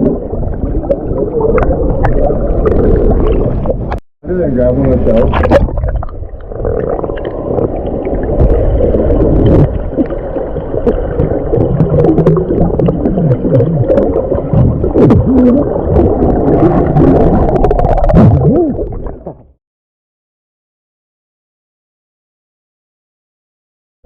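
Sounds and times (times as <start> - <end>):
muffled creek water gurgling: 0.0 - 19.6
bubbling pitch sweeps: 5.4 - 19.4.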